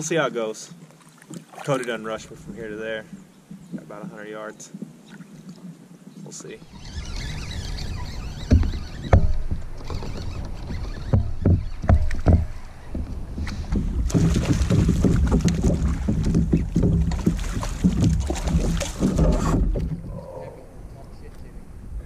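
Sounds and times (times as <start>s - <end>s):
paddle knocking plastic kayak: 6.6s - 20.2s.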